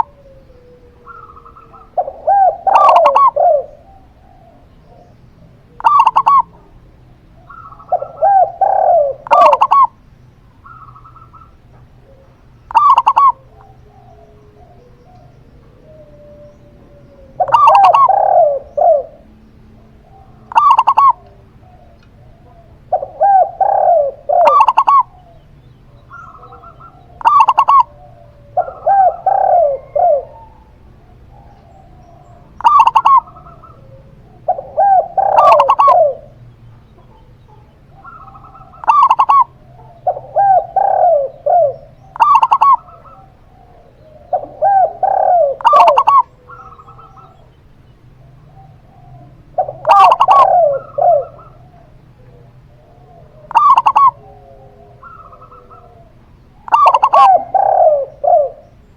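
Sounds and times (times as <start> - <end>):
doves cooing: 0.0 - 58.9.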